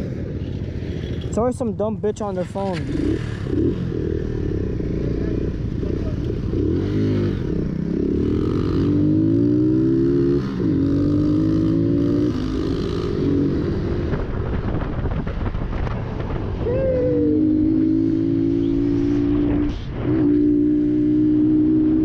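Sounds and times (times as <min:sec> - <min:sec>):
motorcycle engine shifting gears: 0:17.4 - 0:22.0.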